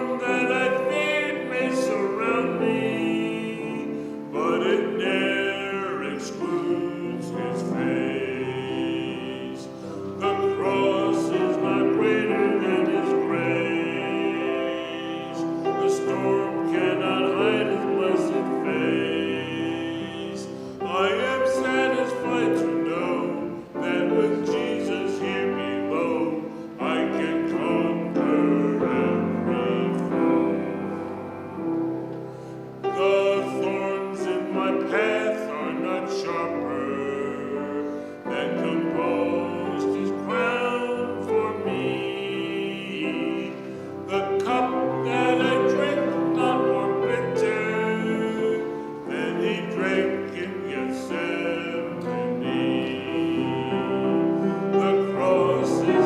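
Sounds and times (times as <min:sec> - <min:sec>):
person singing with vibrato: 0:00.0 - 0:31.3, 0:32.7 - 0:56.0
piano accompaniment: 0:00.0 - 0:56.0.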